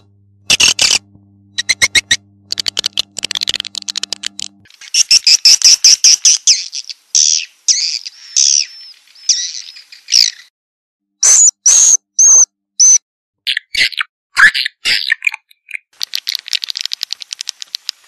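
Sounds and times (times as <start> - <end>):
swiftlet chirps and twittering: 1.6 - 4.2.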